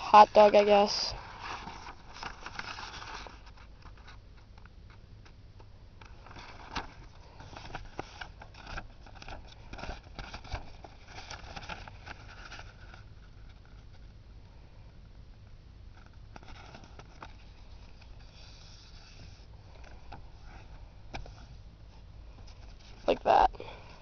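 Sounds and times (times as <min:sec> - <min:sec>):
paper being folded and creased: 0:00.0 - 0:05.0, 0:06.0 - 0:14.1, 0:16.0 - 0:21.6.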